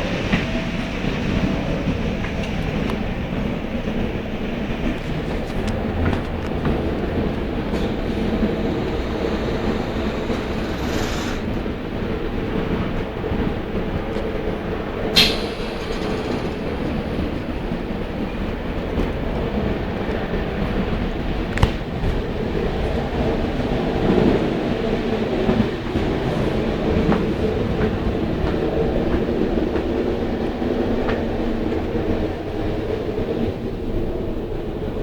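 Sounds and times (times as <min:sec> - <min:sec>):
train rumble: 0:00.0 - 0:35.0.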